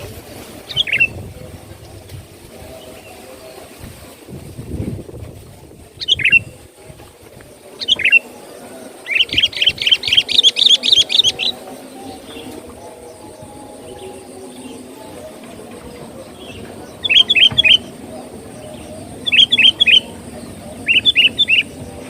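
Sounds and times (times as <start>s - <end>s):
bird calling: 0.0s - 1.5s, 6.0s - 6.6s, 7.6s - 22.0s
bird chattering: 16.4s - 21.8s.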